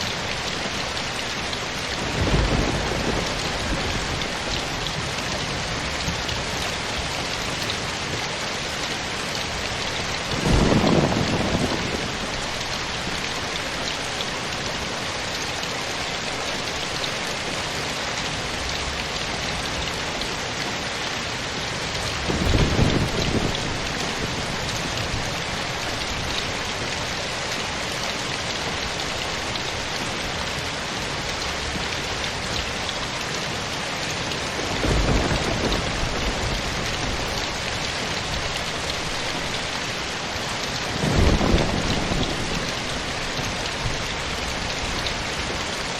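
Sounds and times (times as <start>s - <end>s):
steady rain: 0.0s - 45.9s
thunder rumbling: 1.8s - 8.8s, 9.5s - 13.7s, 21.9s - 27.0s, 34.5s - 39.8s, 40.8s - 45.6s.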